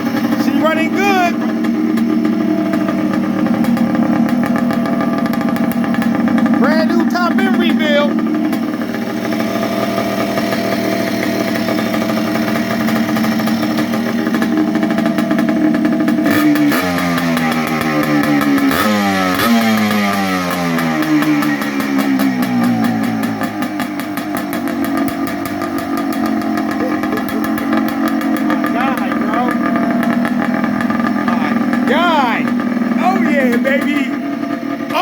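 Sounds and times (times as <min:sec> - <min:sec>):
two-stroke engine running: 0:00.0 - 0:35.0.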